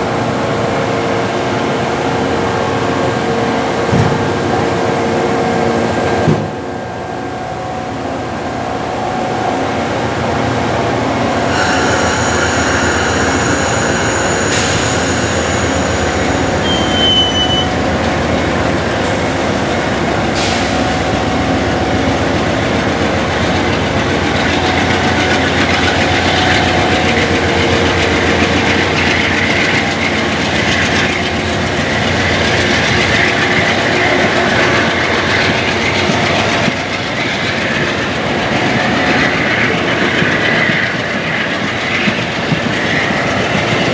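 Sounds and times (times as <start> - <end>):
high thin wheel squeal: 11.4 - 20.5
train wheels clattering on rails: 11.4 - 22.6.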